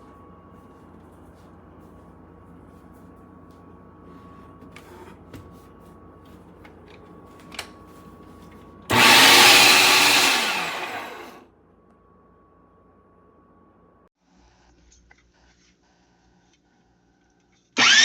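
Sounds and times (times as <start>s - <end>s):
electric meat grinder motor: 8.9s - 11.4s, 17.8s - 18.0s.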